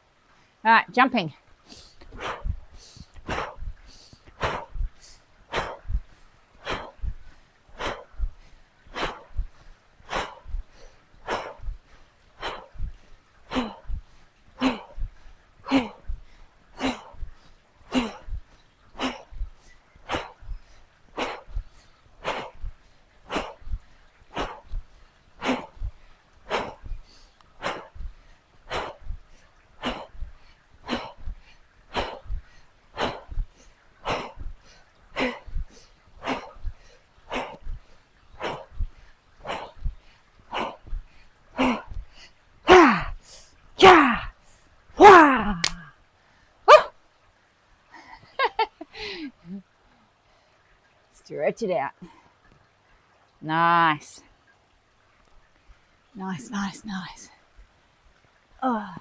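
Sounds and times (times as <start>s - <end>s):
person exhaling forcefully: 42.7s - 43.2s, 43.8s - 44.3s, 45.0s - 45.9s, 46.7s - 46.9s
person grunting: 42.7s - 43.2s, 43.8s - 44.3s, 45.0s - 45.9s.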